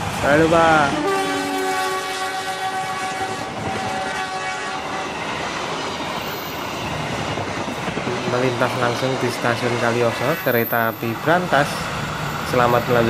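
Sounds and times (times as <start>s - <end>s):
locomotive horn: 0.7s - 5.2s
train wheels clattering on rails: 3.2s - 13.0s.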